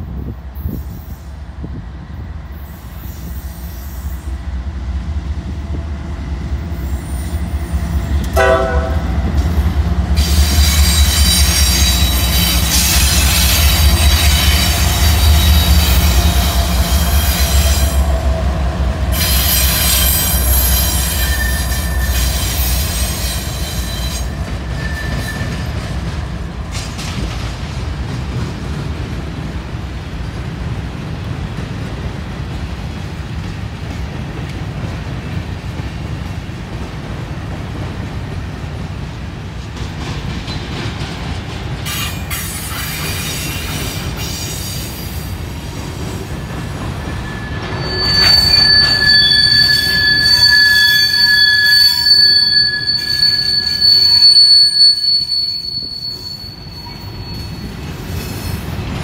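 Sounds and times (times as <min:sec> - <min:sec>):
diesel locomotive engine rumble: 0:00.0 - 0:59.0
train horn blast: 0:08.3 - 0:09.2
steel wheel squeal: 0:10.2 - 0:18.1, 0:19.2 - 0:25.9, 0:46.2 - 0:58.8.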